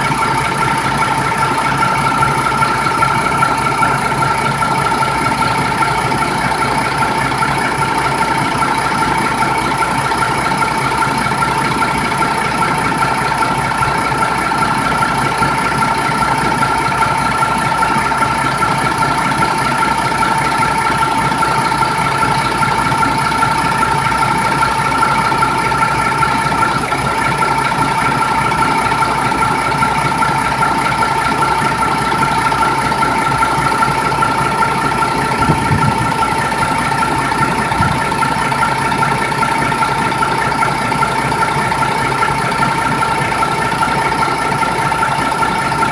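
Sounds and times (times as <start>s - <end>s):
diesel engine running steadily: 0.0s - 45.9s.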